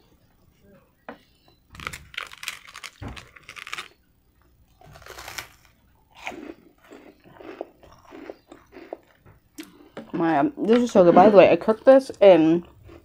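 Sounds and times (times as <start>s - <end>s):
crunching toasted bread: 1.7s - 4.1s, 4.7s - 9.9s.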